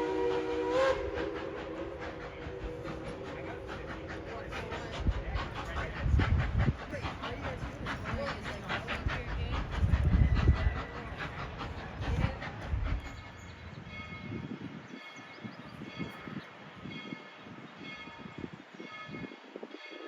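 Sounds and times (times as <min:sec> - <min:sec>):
train rumbling: 0:00.0 - 0:20.0
locomotive bell ringing: 0:13.2 - 0:20.0.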